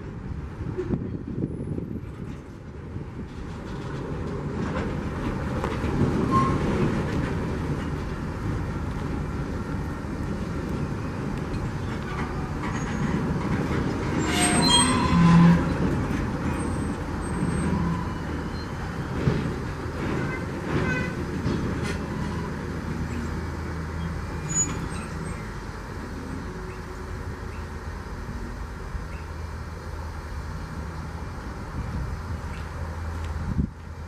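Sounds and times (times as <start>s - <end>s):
train wheels rumbling on rail: 0.0s - 34.0s
metallic squeal and clatter: 6.2s - 6.8s, 11.8s - 19.4s, 20.0s - 21.2s, 21.8s - 25.7s.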